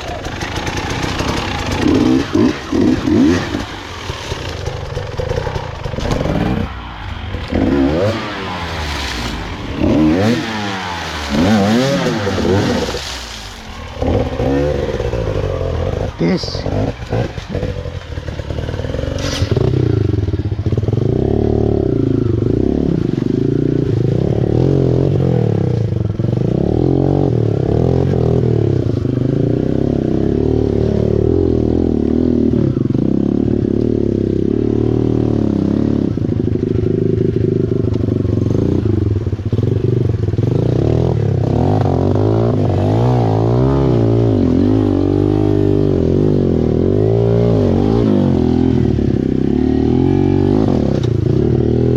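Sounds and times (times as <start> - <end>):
small dirt bike engine revving: 0.0 - 25.7, 40.5 - 51.9.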